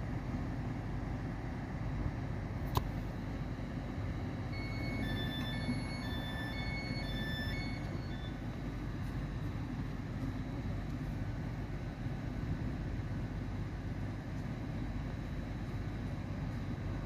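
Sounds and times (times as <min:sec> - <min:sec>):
train diesel engine rumble: 0:00.0 - 0:17.0
two-tone door warning beeps: 0:04.2 - 0:08.6.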